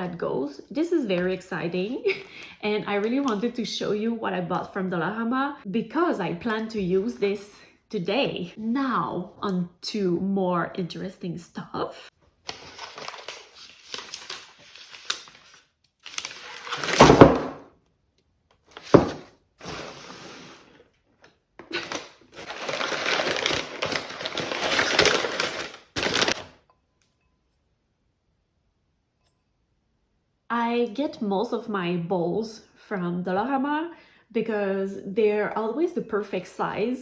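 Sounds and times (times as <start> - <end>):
shopping items rustling: 12.5 - 17.6, 18.7 - 20.8, 21.6 - 26.6
items thudding down: 16.7 - 17.6, 18.7 - 20.2, 21.7 - 26.5.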